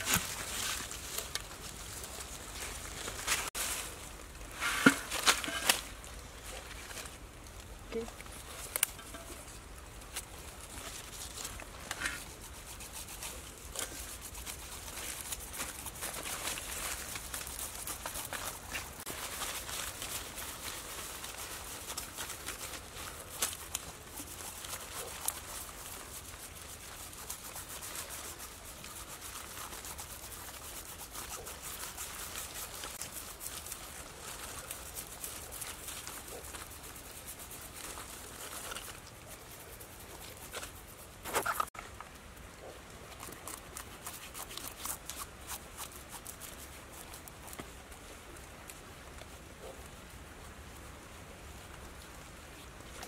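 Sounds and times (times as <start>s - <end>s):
dry leaves rustling and crackling: 0.0s - 42.4s, 43.0s - 49.4s.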